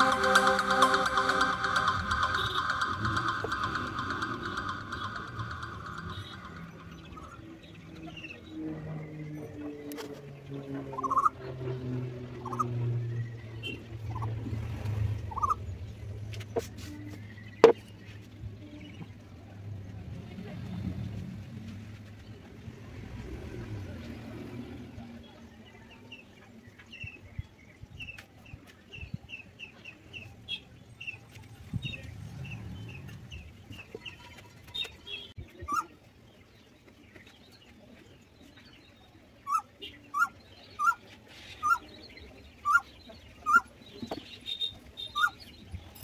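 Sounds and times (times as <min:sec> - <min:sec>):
birds chirping high: 0:25.8 - 0:46.0.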